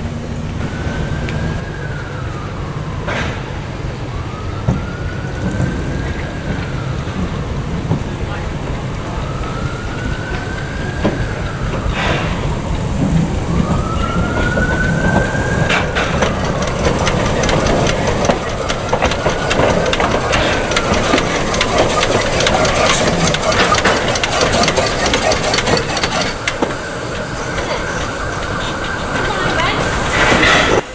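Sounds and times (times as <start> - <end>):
rain: 0.0 - 30.9
train rumble and clatter: 0.0 - 30.9
train wheels squealing: 8.7 - 30.9.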